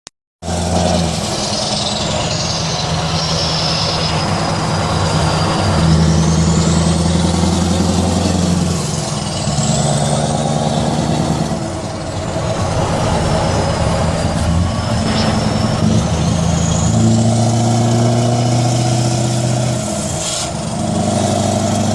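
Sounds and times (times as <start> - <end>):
diesel truck engine exhaust: 0.4 - 21.9.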